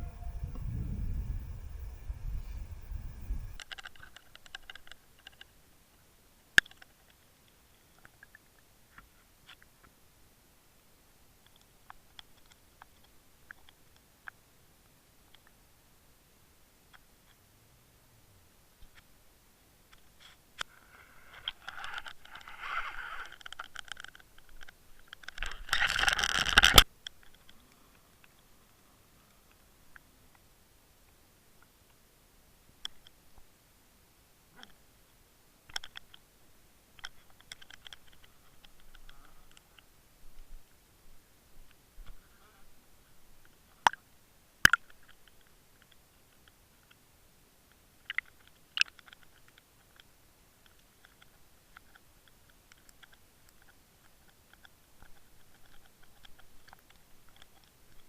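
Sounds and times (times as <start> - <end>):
low rumble: 0.0 - 3.6
rough rustle: 20.2 - 24.2
scratching and scraping: 20.2 - 26.8.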